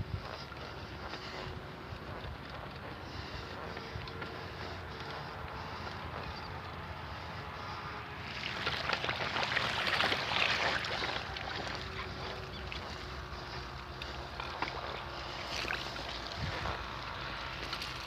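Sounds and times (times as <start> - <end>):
bicycle tyres crunching on dirt: 0.0 - 18.0
wind rushing over microphone: 16.1 - 17.0.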